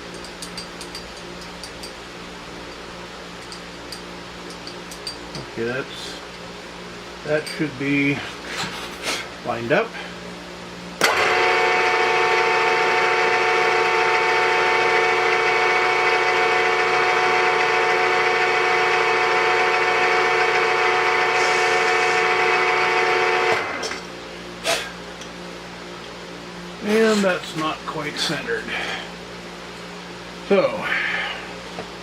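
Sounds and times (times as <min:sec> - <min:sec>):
milling machine spindle whine: 0:11.0 - 0:24.1.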